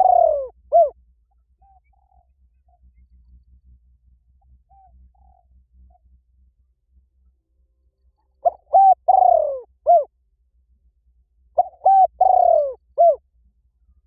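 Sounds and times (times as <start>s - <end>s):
dove cooing: 0.0s - 1.0s, 4.7s - 5.5s, 8.4s - 10.1s, 11.6s - 13.2s.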